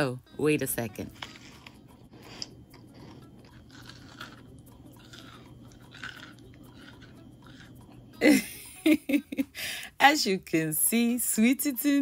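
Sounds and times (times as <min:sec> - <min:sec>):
person chewing pastry: 0:01.1 - 0:08.2.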